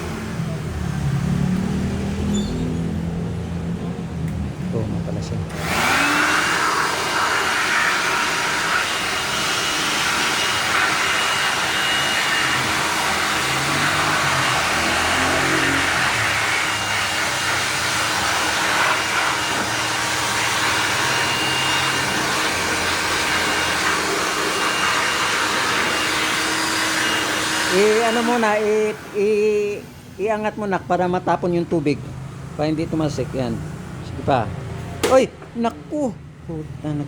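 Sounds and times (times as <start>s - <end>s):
cleaning tool motor whine and hiss: 5.5s - 32.0s.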